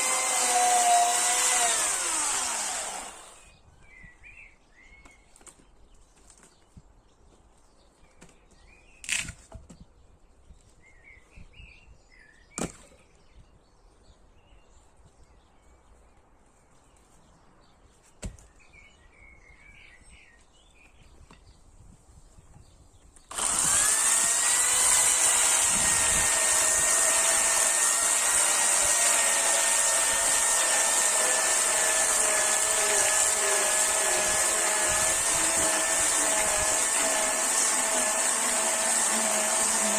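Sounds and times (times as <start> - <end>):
chainsaw running: 0.0 - 3.5, 23.3 - 39.9.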